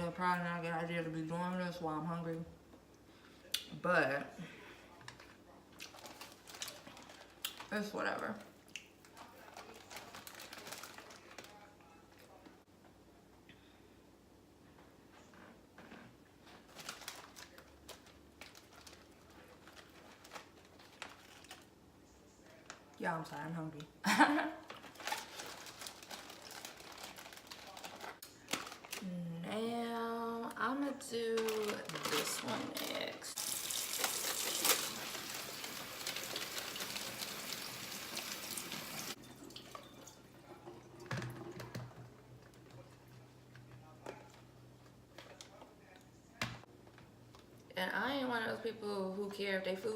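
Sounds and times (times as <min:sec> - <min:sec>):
water running from a tap: 0:33.4 - 0:40.2.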